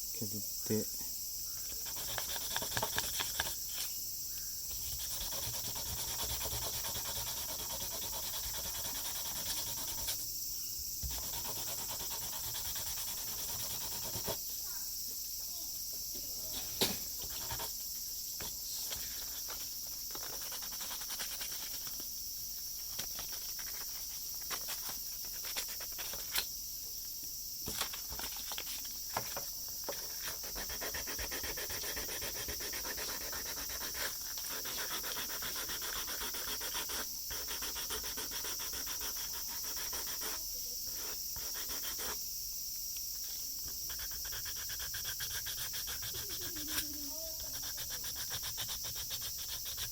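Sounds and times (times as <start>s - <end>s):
steady high hiss: 0.0s - 49.9s
filing plastic rubbing strokes: 1.7s - 3.9s, 4.7s - 10.2s, 11.0s - 14.4s, 18.9s - 22.0s, 29.9s - 40.4s, 43.9s - 49.9s.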